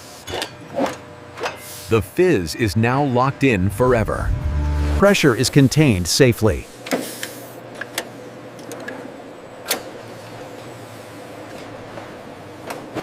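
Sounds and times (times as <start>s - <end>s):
machinery humming: 1.9s - 6.8s.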